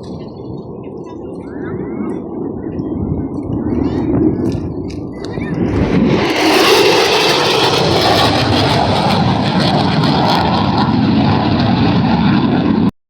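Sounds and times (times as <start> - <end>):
military aircraft engine: 0.0 - 12.9.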